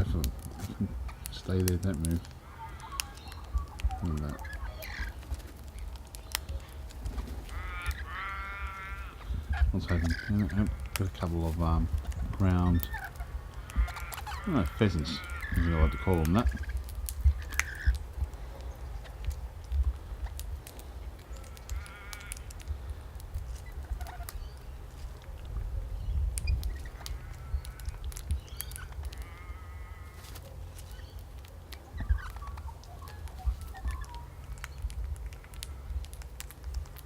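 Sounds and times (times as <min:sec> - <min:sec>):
birds calling: 0:00.0 - 0:37.0
steady low rumble: 0:00.0 - 0:37.0
small bird chirps: 0:02.1 - 0:11.0, 0:11.9 - 0:19.4, 0:23.5 - 0:36.2.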